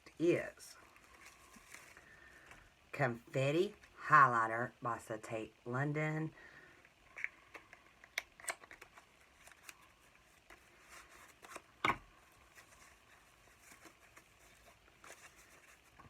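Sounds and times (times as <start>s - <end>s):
packaging clicks and rustles: 7.1s - 16.0s.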